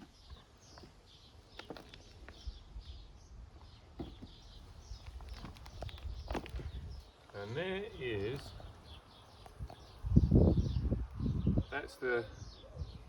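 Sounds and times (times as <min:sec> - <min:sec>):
bird chirping: 0:00.0 - 0:13.0
hands rustling through compost: 0:03.8 - 0:10.1.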